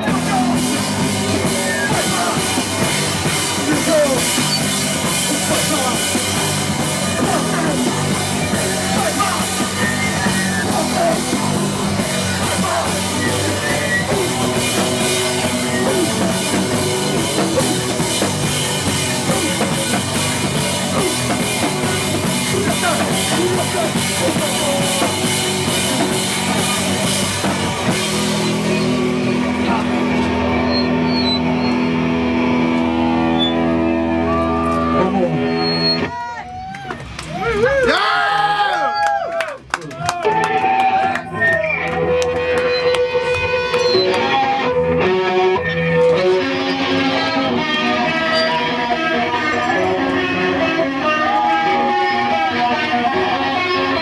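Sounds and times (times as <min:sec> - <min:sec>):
drum kit beat: 0:00.0 - 0:32.8
live rock band playing: 0:00.0 - 0:37.6, 0:40.2 - 0:54.0.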